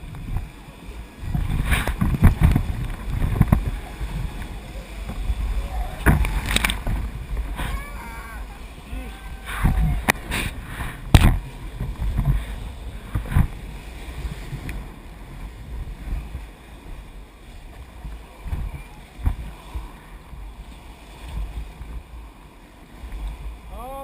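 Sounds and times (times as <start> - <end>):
river water moving: 0.0 - 24.0
wind rumbling on microphone: 0.0 - 24.0.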